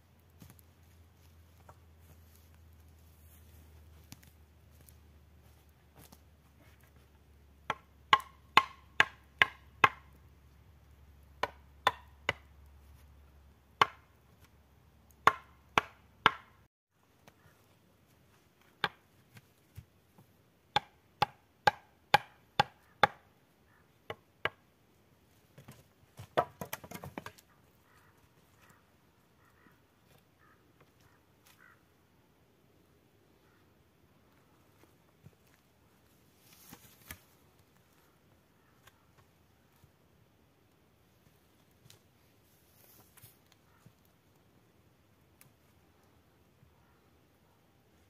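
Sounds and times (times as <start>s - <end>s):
tool striking wood: 7.7s - 10.0s, 15.2s - 16.6s, 20.8s - 23.2s.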